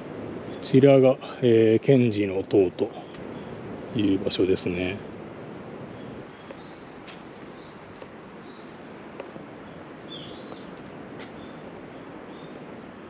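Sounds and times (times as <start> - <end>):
steady background hiss: 0.0 - 13.0
faint bird chirps: 2.8 - 3.6, 5.9 - 9.0, 9.6 - 13.0.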